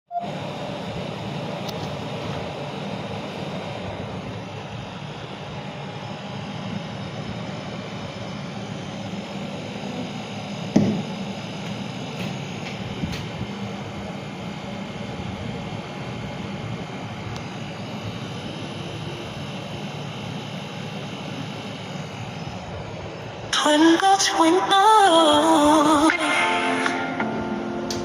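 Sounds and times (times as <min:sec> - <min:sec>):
refrigerator compressor humming: 0:00.1 - 0:28.0
sharp knock: 0:10.8 - 0:11.0.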